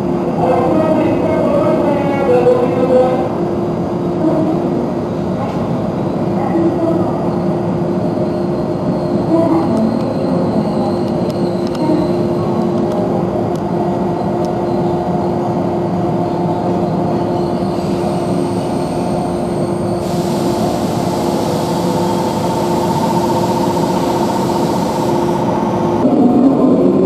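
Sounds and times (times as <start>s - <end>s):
train running: 0.0s - 27.0s
hiss: 20.0s - 25.3s.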